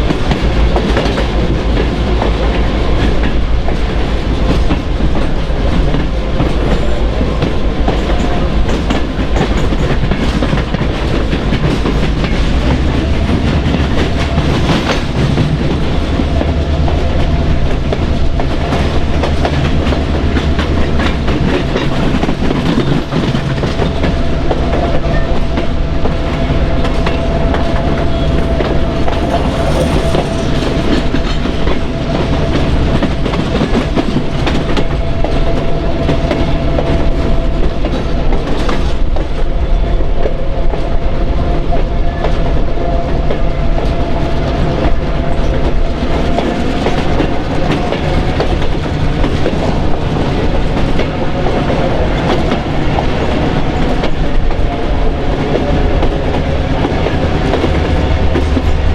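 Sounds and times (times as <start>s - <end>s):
train wheels clicking over rail joints: 0.0s - 39.4s.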